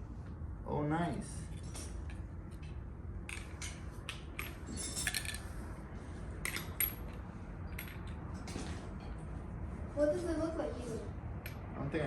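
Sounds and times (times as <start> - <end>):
metal tools clinking: 4.4 - 5.5.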